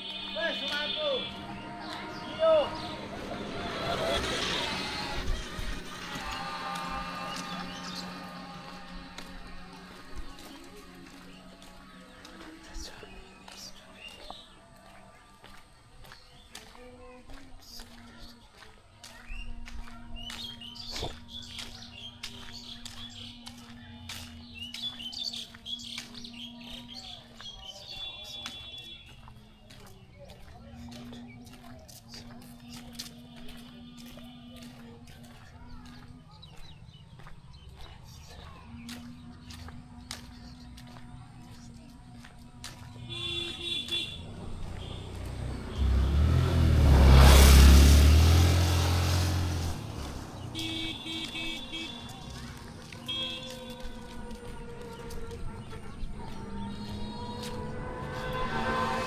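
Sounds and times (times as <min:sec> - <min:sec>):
vehicle passing by: 0:00.0 - 0:27.3, 0:28.5 - 0:59.0
small birds chirping: 0:00.0 - 0:58.9.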